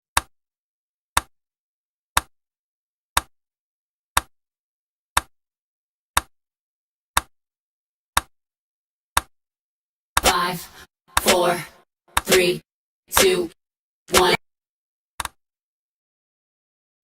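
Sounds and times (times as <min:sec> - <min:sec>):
clock ticks: 0:10.2 - 0:13.5, 0:14.1 - 0:14.4.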